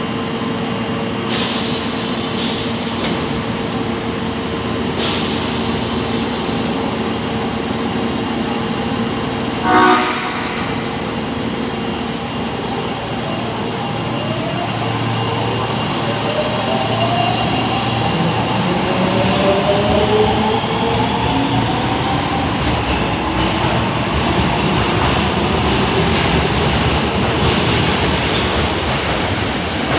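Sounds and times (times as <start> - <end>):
subway train horn blast: 9.6 - 11.4.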